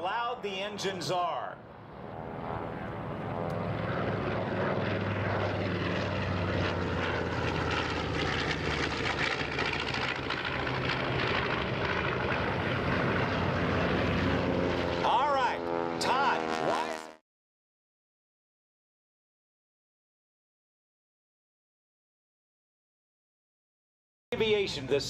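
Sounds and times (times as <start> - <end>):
propeller aircraft engine drone: 0.0 - 17.2, 24.4 - 25.0.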